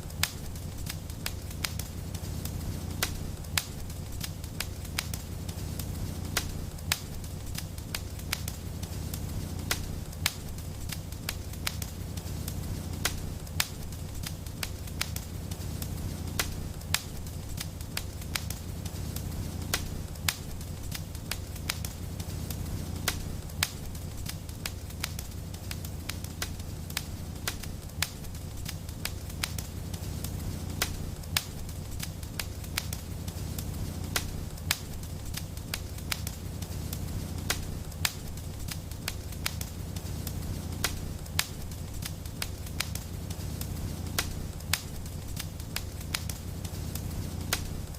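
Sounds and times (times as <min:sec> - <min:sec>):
fire crackling and popping: 0:00.0 - 0:47.9
low fire rumble: 0:00.0 - 0:47.9.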